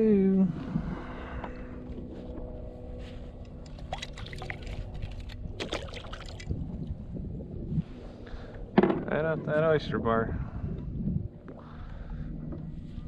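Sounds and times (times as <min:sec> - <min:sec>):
steady low hum: 0:00.0 - 0:13.0
water splashing around kayak: 0:03.8 - 0:06.6.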